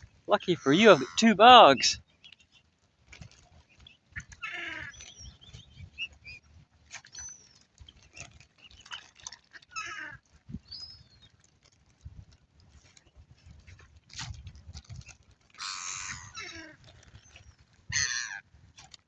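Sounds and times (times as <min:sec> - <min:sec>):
waterbirds nasal calls: 0:00.3 - 0:02.0, 0:04.2 - 0:06.4, 0:09.6 - 0:10.2, 0:15.6 - 0:18.4.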